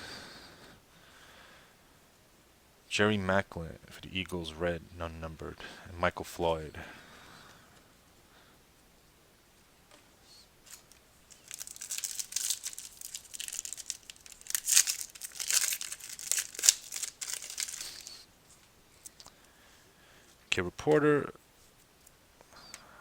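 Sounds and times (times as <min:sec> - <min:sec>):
foil wrapper torn and crinkled: 0:10.6 - 0:18.2.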